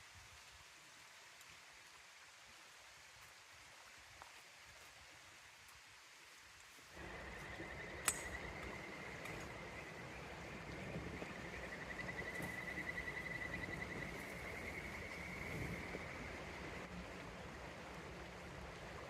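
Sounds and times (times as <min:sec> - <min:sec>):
river water running: 0:00.0 - 0:19.0
sharp click: 0:08.0 - 0:08.4.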